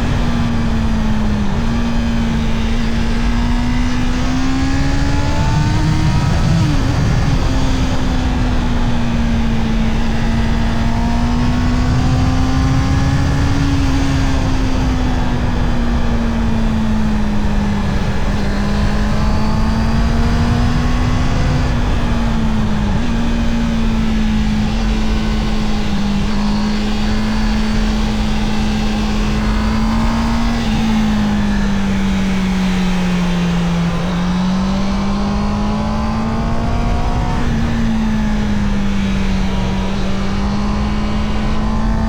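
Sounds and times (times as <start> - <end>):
motorcycle engine running hard: 0.0 - 42.0
wind noise: 0.0 - 42.0.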